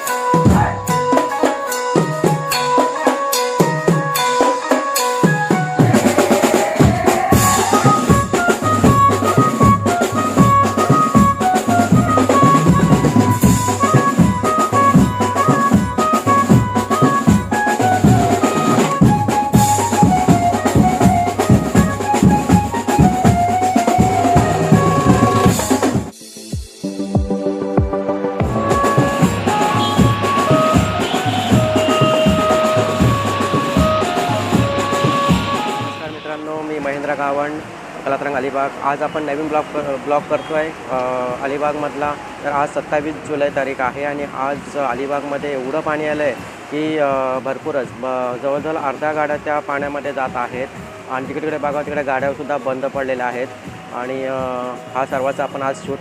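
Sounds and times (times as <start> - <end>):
fast drum beat: 0.0 - 36.4
bright melody line: 0.0 - 36.8.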